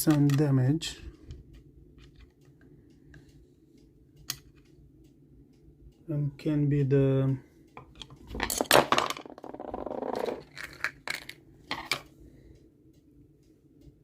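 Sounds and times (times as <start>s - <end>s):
metal parts clinking: 7.9s - 12.1s.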